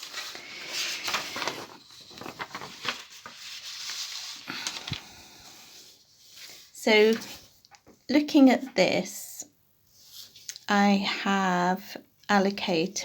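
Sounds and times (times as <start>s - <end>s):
paper rustling: 0.0s - 8.0s.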